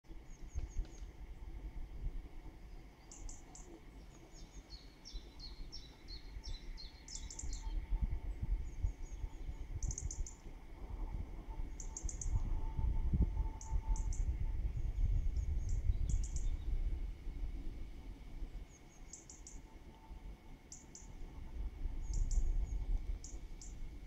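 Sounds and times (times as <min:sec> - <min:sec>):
songbirds chirping and trilling: 0:00.1 - 0:01.8, 0:02.4 - 0:12.8, 0:13.4 - 0:17.0, 0:18.6 - 0:24.0
low rumble: 0:04.3 - 0:24.0.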